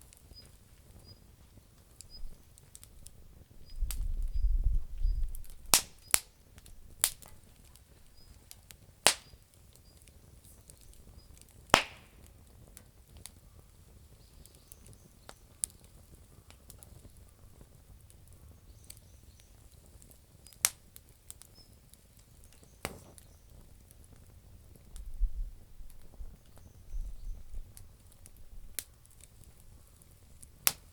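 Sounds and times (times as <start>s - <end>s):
campfire crackling: 0.0s - 30.9s.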